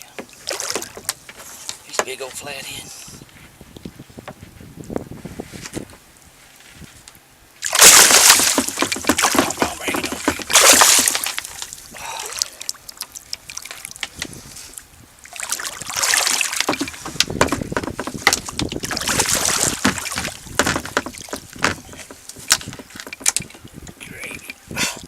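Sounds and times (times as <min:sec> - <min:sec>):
water splashing beside kayak: 0:00.2 - 0:01.5, 0:07.6 - 0:23.8
knocks and clicks on hull: 0:00.2 - 0:02.2, 0:07.8 - 0:11.8, 0:15.8 - 0:24.6.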